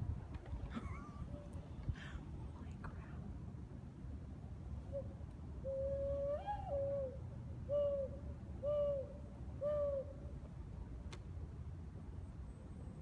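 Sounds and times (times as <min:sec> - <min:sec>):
mourning dove cooing: 0:04.9 - 0:10.3.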